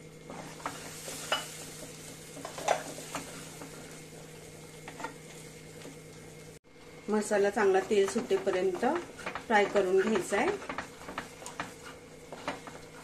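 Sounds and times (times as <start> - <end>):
paste sizzling in a pan: 0.3 - 6.5, 7.1 - 13.0
spatula scraping a pan: 7.6 - 13.0.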